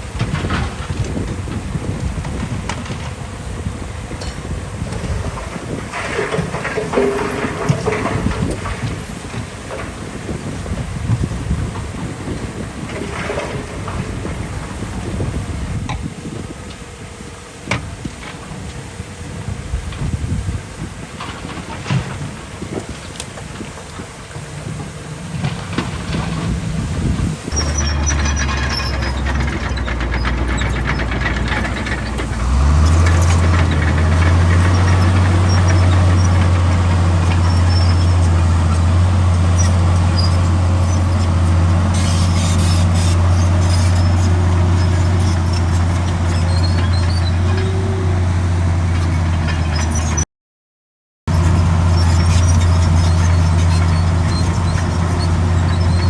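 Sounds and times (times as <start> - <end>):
heavy diesel machinery engine: 0.0 - 50.2, 51.3 - 56.0
faint squeaks: 27.5 - 31.2.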